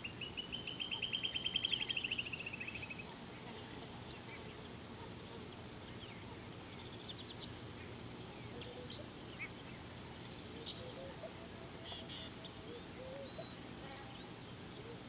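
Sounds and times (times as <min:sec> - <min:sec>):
faint bird chirps: 0:00.0 - 0:15.0
low background hiss: 0:00.0 - 0:15.0
bird trilling: 0:10.4 - 0:15.0.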